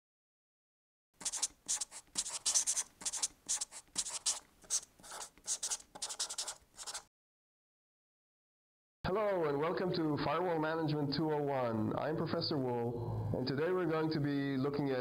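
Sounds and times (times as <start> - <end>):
marker writing on whiteboard: 1.2 - 7.1.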